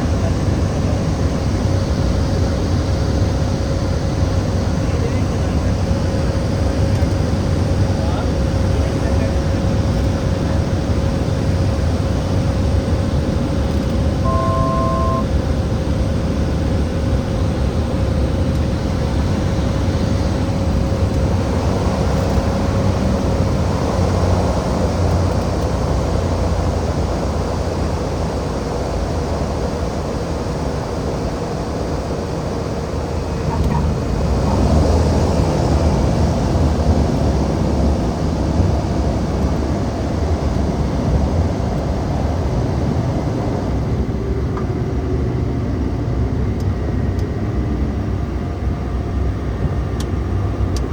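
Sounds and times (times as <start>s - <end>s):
turboprop cabin drone: 0.0s - 50.9s
two-tone electronic chime: 14.3s - 15.3s.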